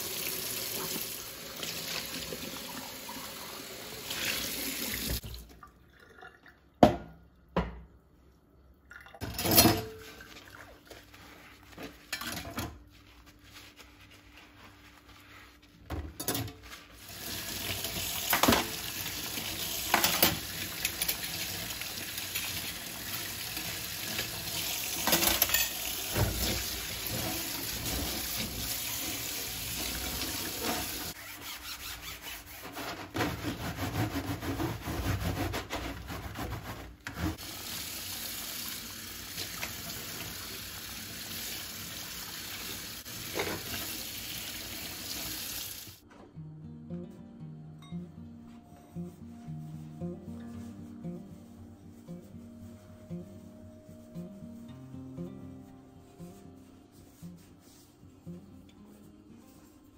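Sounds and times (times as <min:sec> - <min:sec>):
tap water running into sink: 0:00.0 - 0:06.9, 0:37.4 - 0:46.0.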